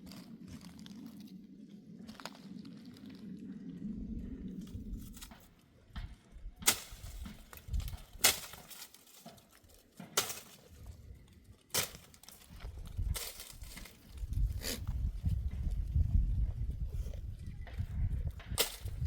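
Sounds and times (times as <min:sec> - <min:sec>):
low rumble: 0:00.1 - 0:08.2, 0:12.5 - 0:19.0.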